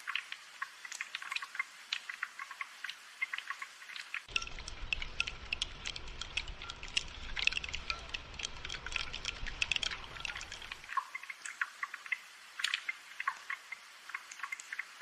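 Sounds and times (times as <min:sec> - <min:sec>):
rain dripping: 0:00.0 - 0:15.0.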